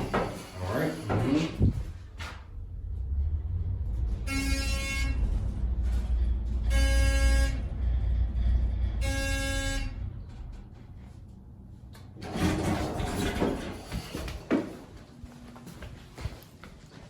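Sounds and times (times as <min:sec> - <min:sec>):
low rumble: 0:01.4 - 0:14.4
horn-like beeps: 0:04.1 - 0:05.7, 0:06.5 - 0:10.2.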